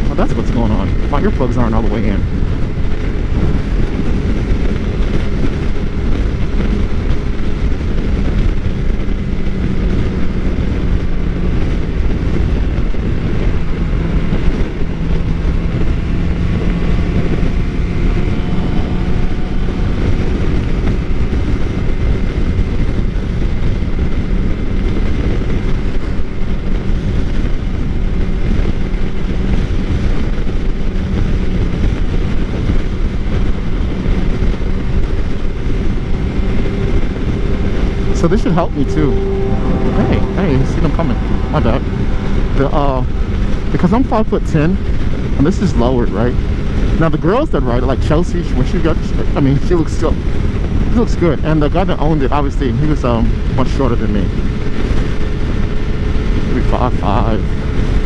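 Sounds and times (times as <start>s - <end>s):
motorcycle engine running: 0.0s - 51.4s
wind rush on microphone: 0.0s - 58.0s.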